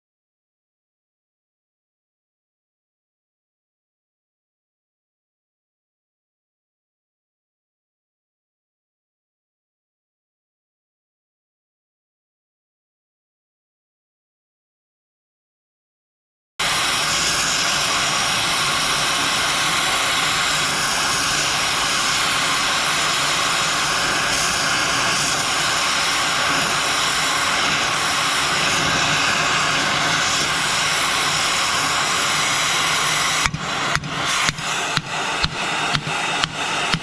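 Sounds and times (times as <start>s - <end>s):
gas torch roaring: 16.6s - 37.0s.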